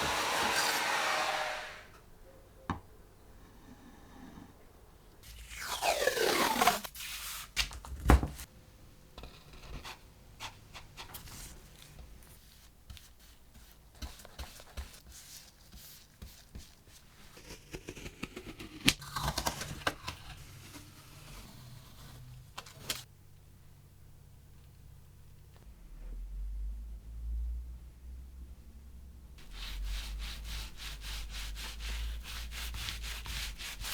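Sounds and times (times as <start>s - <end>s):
falling machine whine: 0.0s - 2.0s.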